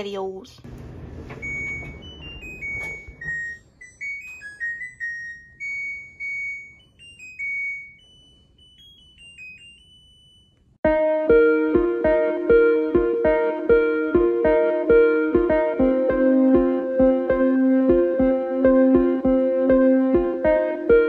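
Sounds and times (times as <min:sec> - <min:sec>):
electronic beeped melody: 0:01.4 - 0:21.0
strummed guitar music: 0:10.9 - 0:21.0.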